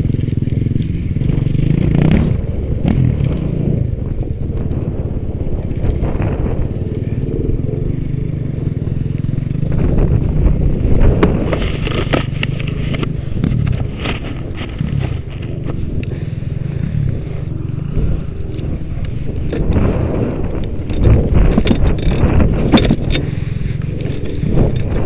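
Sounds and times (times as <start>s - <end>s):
dirt bike engine revving: 0.0s - 25.0s
sharp clattering knocks: 19.5s - 23.4s.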